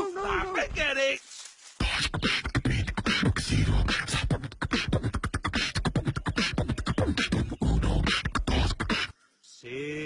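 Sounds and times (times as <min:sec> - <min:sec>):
beatboxing mouth sounds: 0:01.8 - 0:09.2.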